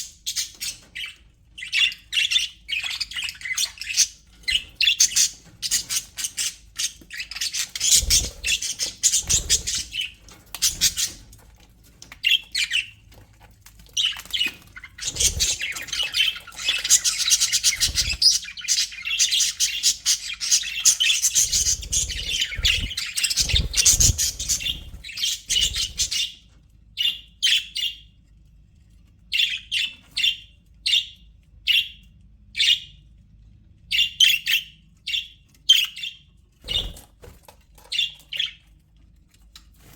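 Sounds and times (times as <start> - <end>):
budgerigars chattering and warbling: 0.0 - 11.3, 14.0 - 26.4.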